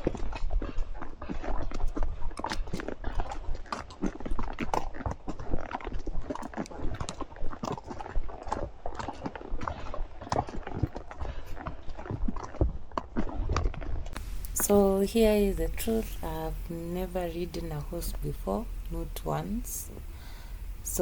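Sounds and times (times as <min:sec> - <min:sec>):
horses' hooves clopping: 0:00.0 - 0:20.0
low rumble: 0:14.2 - 0:21.0.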